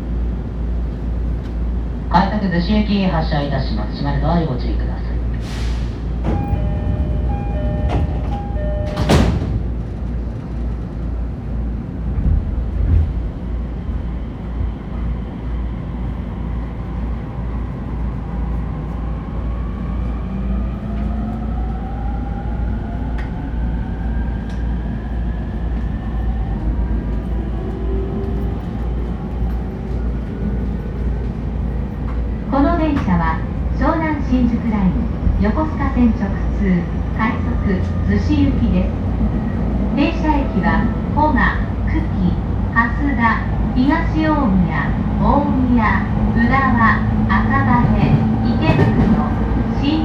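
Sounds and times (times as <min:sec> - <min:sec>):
train rumble: 0:00.0 - 0:50.0
train doors sliding shut: 0:05.3 - 0:11.2, 0:46.4 - 0:50.0
door chime: 0:06.3 - 0:09.3.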